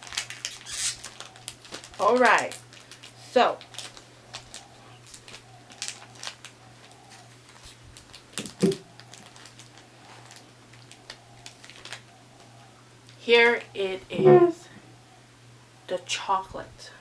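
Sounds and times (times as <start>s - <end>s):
candy wrapper crinkling: 0.0s - 6.5s, 7.1s - 12.0s.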